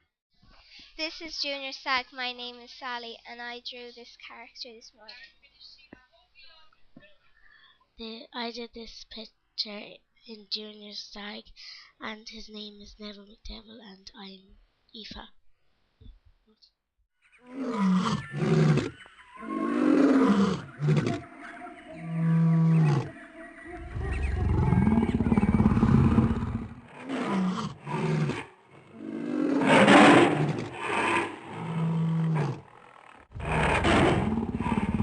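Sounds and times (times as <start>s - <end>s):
cartoon character roars and growls: 17.5s - 18.9s, 23.8s - 32.6s, 33.4s - 35.0s.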